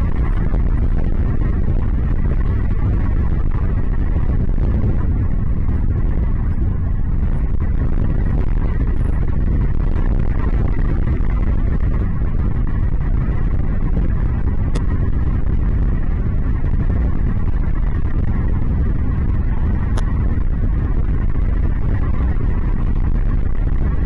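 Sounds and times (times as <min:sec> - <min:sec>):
loud low rumbling: 0:00.0 - 0:24.0.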